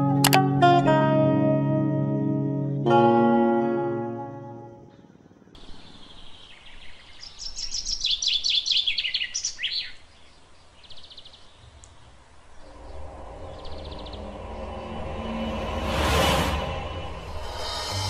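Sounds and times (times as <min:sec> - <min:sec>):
faint outdoor hiss: 0:03.2 - 0:15.8.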